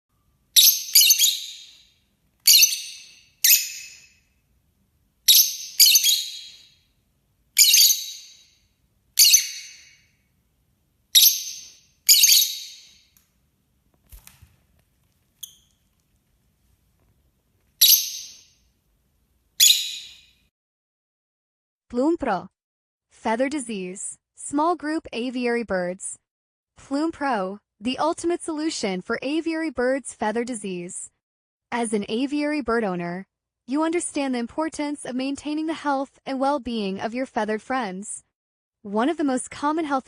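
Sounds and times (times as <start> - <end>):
small bird high calls: 0.6 - 4.2, 5.3 - 6.8, 7.6 - 8.6, 9.2 - 10.1, 11.1 - 13.1, 17.8 - 18.6, 19.6 - 20.4.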